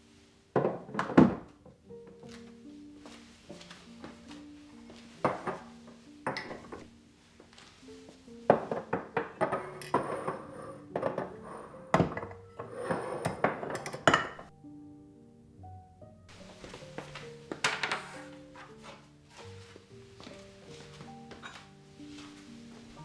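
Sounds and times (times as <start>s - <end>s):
soft background music: 0.0s - 23.0s
household items clinking and knocking: 0.6s - 2.5s, 3.8s - 6.9s, 8.1s - 14.5s, 16.3s - 22.9s.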